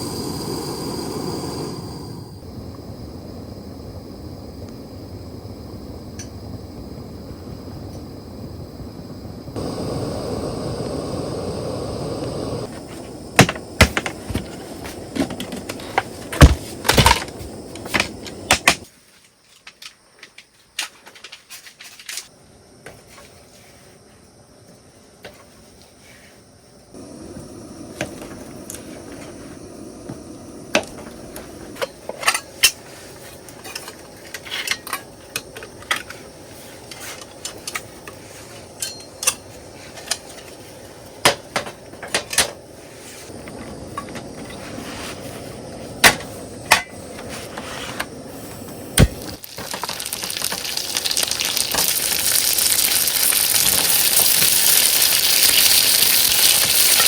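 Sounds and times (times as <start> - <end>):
steady hiss: 0.0 - 20.0, 20.7 - 57.0
utensils and cookware clinking: 38.8 - 39.4.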